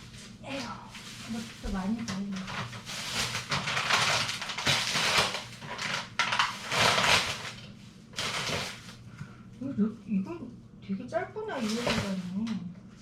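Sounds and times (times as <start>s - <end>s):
food packaging crinkling: 1.0s - 9.0s.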